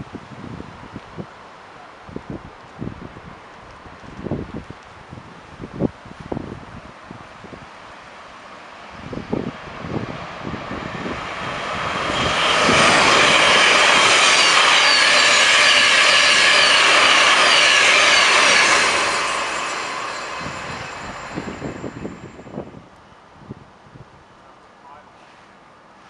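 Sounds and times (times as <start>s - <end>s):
passenger train passing: 5.5s - 23.7s.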